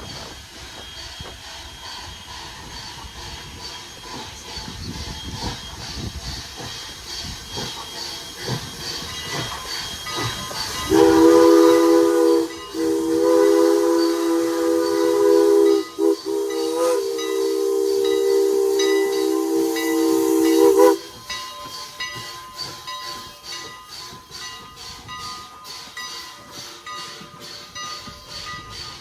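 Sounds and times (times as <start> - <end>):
rail clatter: 0.0 - 29.0
steam hiss: 0.0 - 29.0
steam locomotive chime whistle: 0.0 - 29.0.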